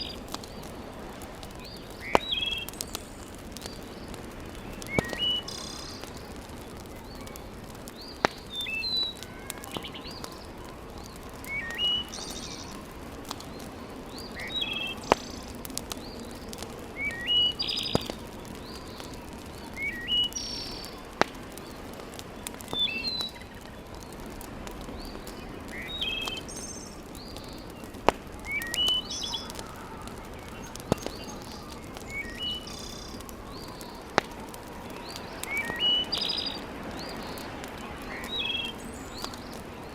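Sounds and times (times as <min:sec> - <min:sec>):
burning logs popping: 0:00.0 - 0:39.9
wood fire hiss: 0:00.0 - 0:39.9
songbird chirping: 0:01.6 - 0:24.2, 0:24.9 - 0:34.2.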